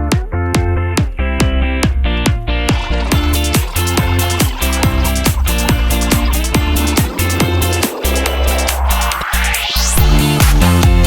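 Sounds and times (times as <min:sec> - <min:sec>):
kick drum: 0:00.0 - 0:03.8, 0:10.0 - 0:11.0
held synth chords: 0:02.3 - 0:11.0.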